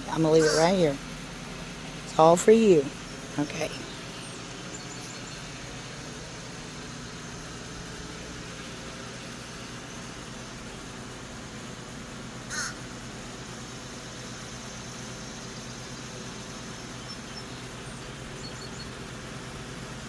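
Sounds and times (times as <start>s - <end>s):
steady background hum: 0.0s - 20.0s
bird call: 0.1s - 1.0s, 12.5s - 12.9s, 16.6s - 19.0s.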